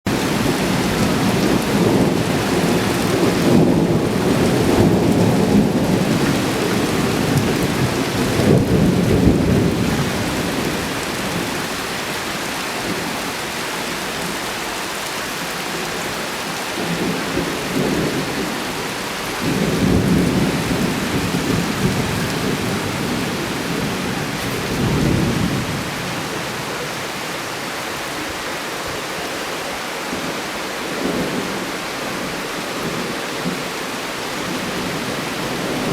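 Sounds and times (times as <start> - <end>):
thunder rumbling: 0.1 - 12.2, 16.6 - 27.4
heavy rain: 0.1 - 35.9.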